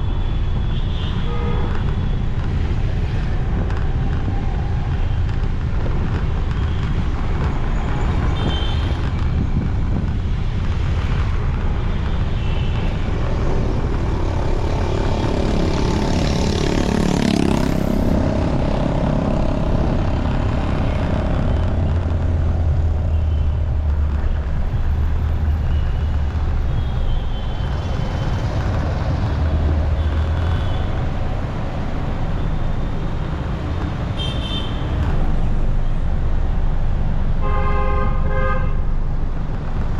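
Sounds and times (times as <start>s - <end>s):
wind on microphone: 1.5s - 32.4s
motorcycle engine rumble: 1.6s - 37.3s.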